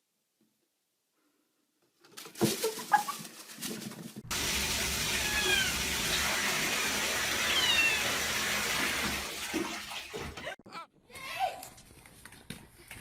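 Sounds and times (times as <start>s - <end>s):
cat meowing: 5.1s - 5.8s, 7.4s - 8.2s.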